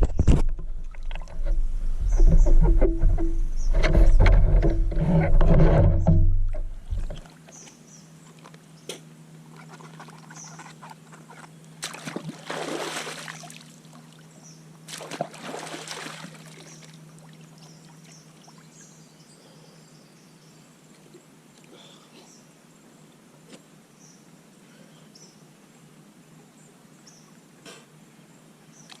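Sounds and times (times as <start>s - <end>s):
faint steady hum: 0.0s - 29.0s
water splashing and trickling: 9.5s - 19.0s.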